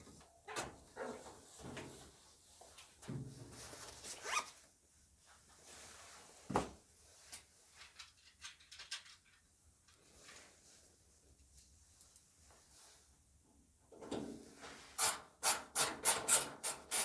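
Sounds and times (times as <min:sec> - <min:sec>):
small clicks and knocks: 0:07.3 - 0:10.0.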